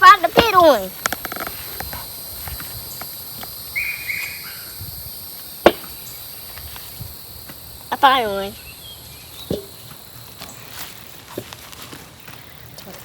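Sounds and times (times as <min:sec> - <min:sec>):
sharp knock: 0:05.6 - 0:06.0.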